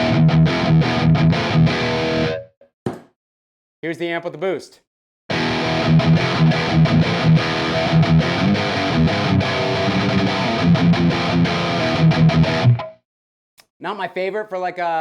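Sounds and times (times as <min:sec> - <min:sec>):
distorted electric guitar riff: 0:00.0 - 0:02.5, 0:05.3 - 0:13.0.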